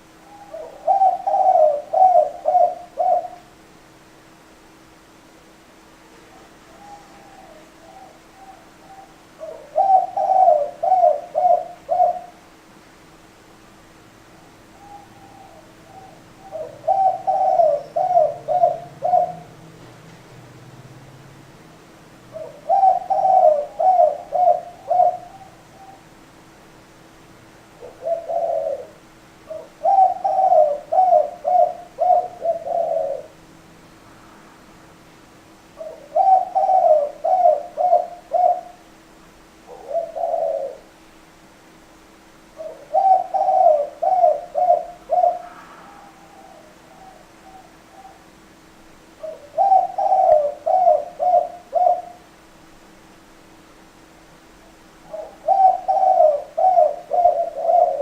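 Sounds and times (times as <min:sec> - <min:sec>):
dove cooing: 0:00.0 - 0:03.6, 0:06.0 - 0:12.6, 0:14.3 - 0:19.7, 0:22.3 - 0:26.2, 0:27.7 - 0:33.5, 0:35.7 - 0:38.9, 0:39.6 - 0:41.0, 0:42.5 - 0:52.4, 0:55.0 - 0:58.0.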